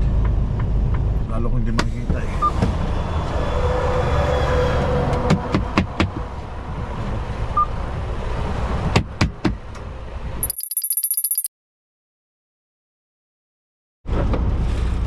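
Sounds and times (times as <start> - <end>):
fast electronic ticking: 10.4 - 11.5.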